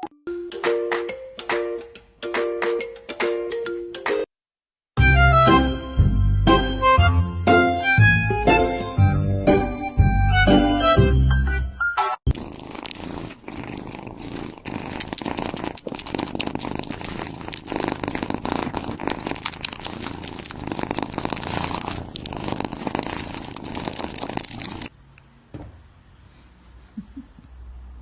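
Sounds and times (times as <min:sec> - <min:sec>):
cat purring: 0:12.3 - 0:24.9.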